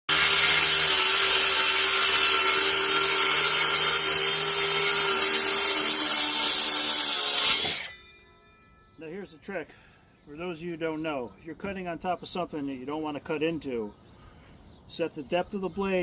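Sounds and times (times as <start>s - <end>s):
circular saw cutting wood: 0.1s - 8.1s.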